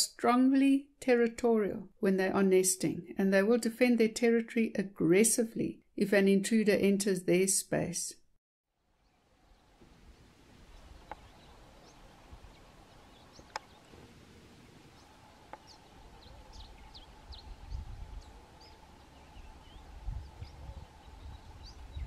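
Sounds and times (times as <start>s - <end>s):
small birds chirping: 9.0s - 22.0s
sharp clicks: 13.5s - 13.7s.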